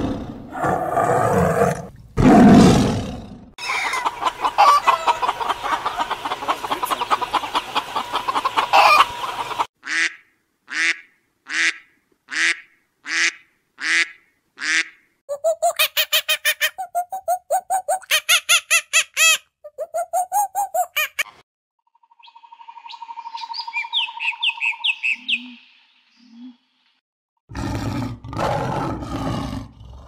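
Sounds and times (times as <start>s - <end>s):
tiger roar: 0.0s - 3.5s, 27.5s - 30.0s
geese calling: 3.6s - 10.1s
goose honking: 8.3s - 10.1s.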